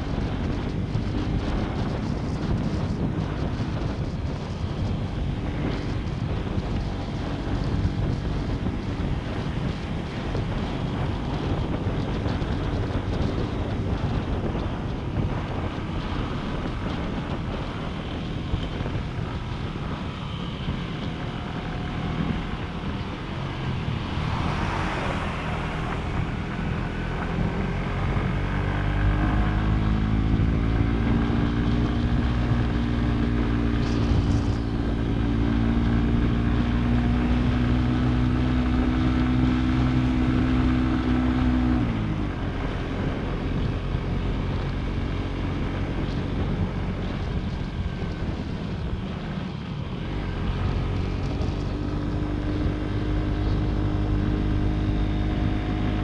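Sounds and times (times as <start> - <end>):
motorcycle engine running: 0.0 - 56.0
wind buffeting microphone: 0.0 - 56.0.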